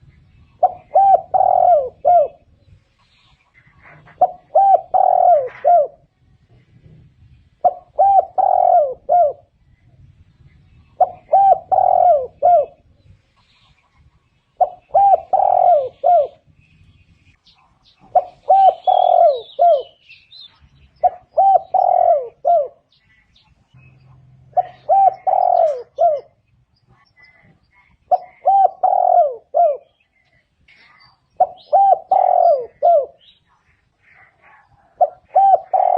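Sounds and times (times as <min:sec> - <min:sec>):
dove cooing: 0:00.0 - 0:02.7, 0:03.6 - 0:06.1, 0:07.6 - 0:09.6, 0:10.8 - 0:13.2, 0:14.5 - 0:16.6, 0:17.8 - 0:20.1, 0:20.7 - 0:26.4, 0:27.0 - 0:30.3, 0:31.4 - 0:35.9.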